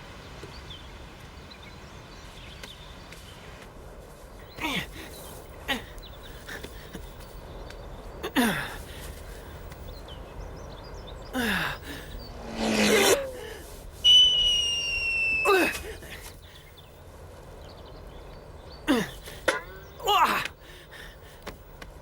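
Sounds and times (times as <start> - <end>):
person gasping and sighing: 8.4 - 9.0, 11.4 - 12.1
high whistling tone sliding down: 12.1 - 15.6.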